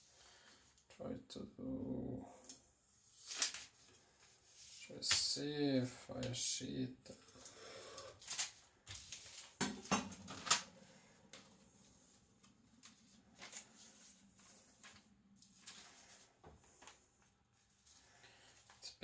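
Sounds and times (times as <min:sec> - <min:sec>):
paper rustling: 0:03.1 - 0:05.2, 0:08.2 - 0:09.6, 0:10.2 - 0:18.8.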